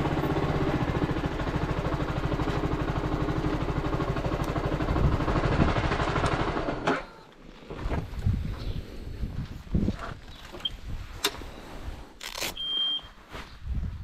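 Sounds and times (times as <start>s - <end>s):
motorcycle engine idling: 0.0s - 7.3s.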